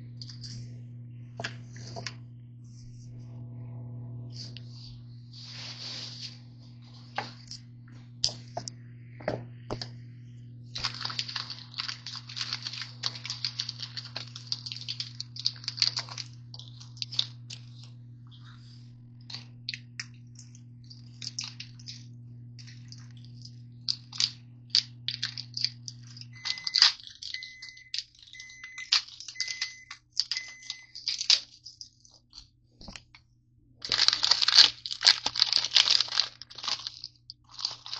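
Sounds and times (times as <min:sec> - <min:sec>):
microwave oven humming: 0:00.0 - 0:37.9
wrappers crinkling: 0:10.7 - 0:33.1, 0:33.8 - 0:37.9
microwave end-of-cycle beeps: 0:26.3 - 0:31.0.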